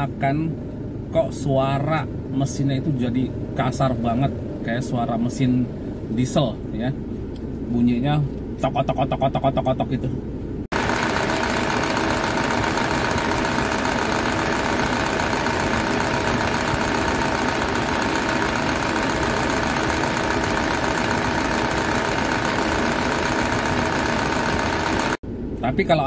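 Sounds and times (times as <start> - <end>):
car engine idling with knock: 10.7 - 25.3.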